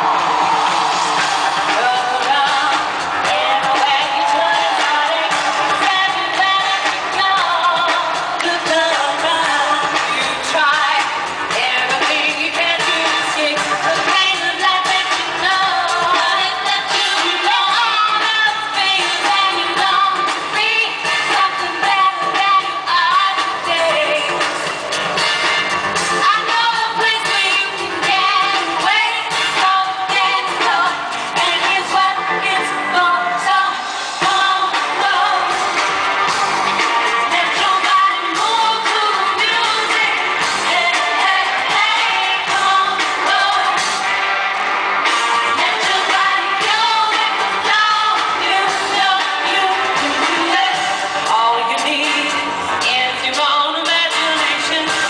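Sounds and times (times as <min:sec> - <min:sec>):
live pop concert music: 0:00.0 - 0:55.0
person singing: 0:01.5 - 0:24.5.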